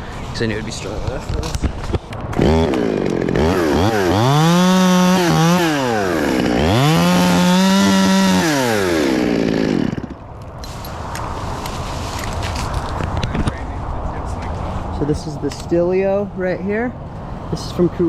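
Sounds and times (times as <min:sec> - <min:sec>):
chainsaw engine revving: 0:02.4 - 0:10.2.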